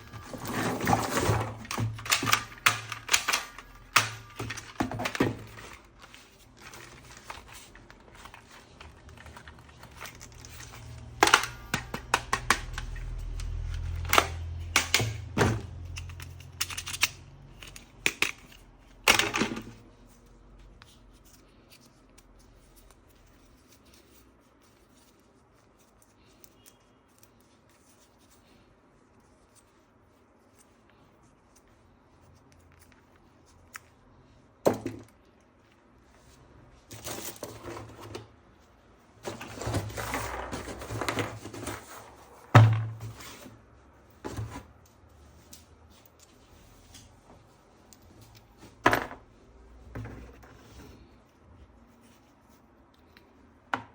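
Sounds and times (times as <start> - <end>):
objects clicking and knocking: 0.0 - 19.8.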